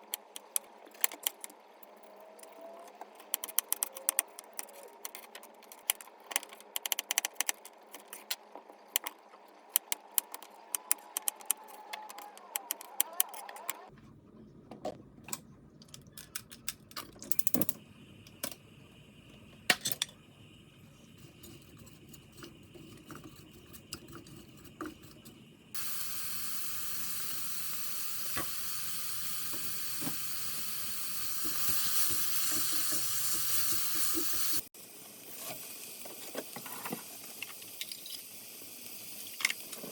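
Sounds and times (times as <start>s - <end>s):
food sizzling in a hot pan: 25.8s - 39.8s.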